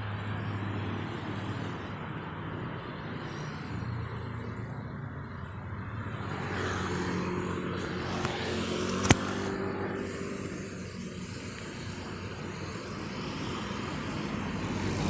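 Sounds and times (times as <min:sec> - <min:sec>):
steady road noise: 0:00.0 - 0:15.0
vehicle engine passing: 0:02.6 - 0:15.0
sharp click: 0:08.2 - 0:09.5.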